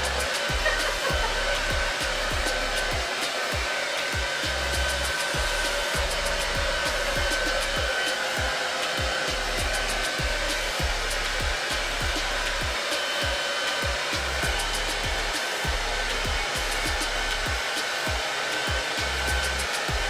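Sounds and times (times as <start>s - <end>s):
hair dryer blowing: 0.0s - 20.0s.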